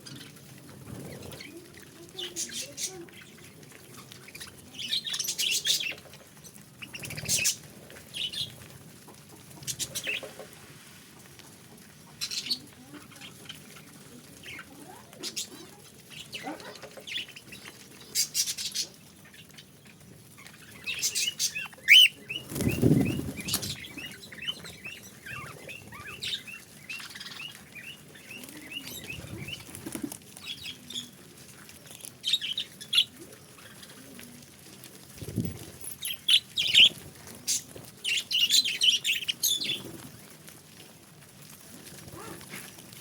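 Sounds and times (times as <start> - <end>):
wings fluttering: 0.0 - 43.0
budgerigars chirping: 20.8 - 27.9, 36.1 - 36.9.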